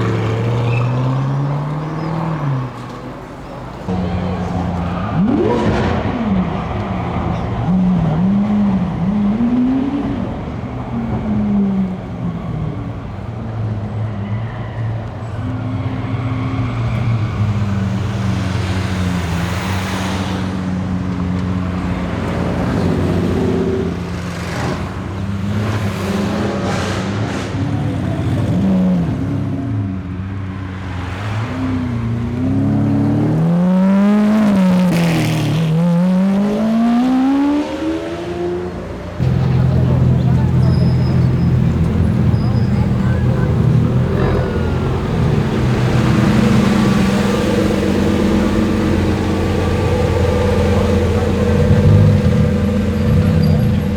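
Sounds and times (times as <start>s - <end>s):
car engines revving: 0.0s - 53.9s.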